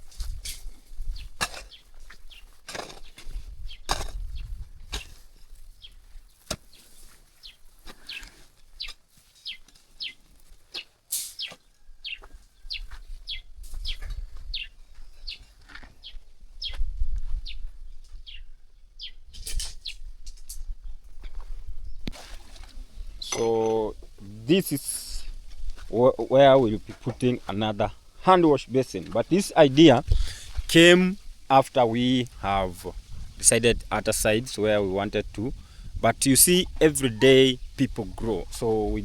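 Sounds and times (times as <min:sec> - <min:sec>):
small birds chirping: 0:01.0 - 0:20.1.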